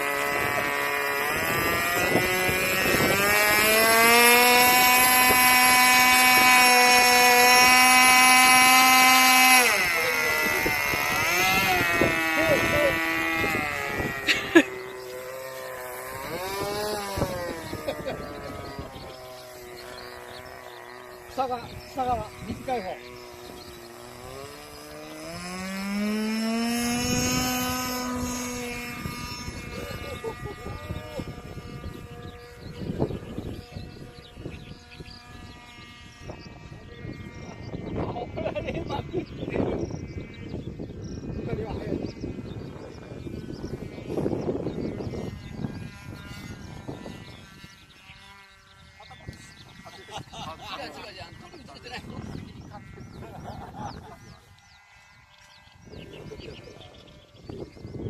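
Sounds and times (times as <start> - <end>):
model airplane engine whining: 0.0 - 58.0.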